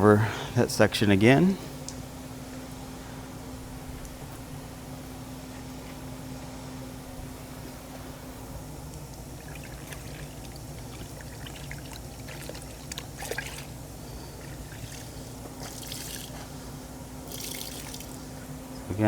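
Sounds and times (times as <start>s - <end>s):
steady low hum: 0.0s - 19.0s
water trickling and dripping: 8.8s - 16.5s, 17.2s - 18.5s.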